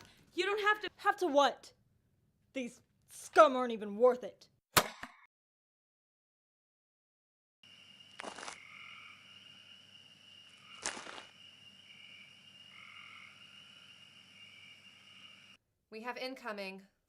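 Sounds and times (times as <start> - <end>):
frogs croaking: 7.6 - 15.6
insects chirring: 7.6 - 15.6.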